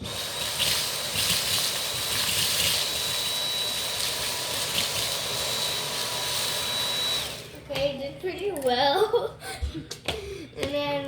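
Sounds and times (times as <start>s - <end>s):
vacuum cleaner motor whine: 0.0s - 7.6s
vacuum sucking up chips: 0.0s - 7.6s.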